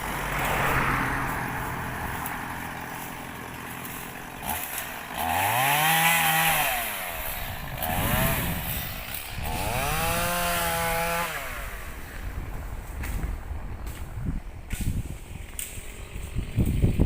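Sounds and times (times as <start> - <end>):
small engine revving: 0.0 - 13.3.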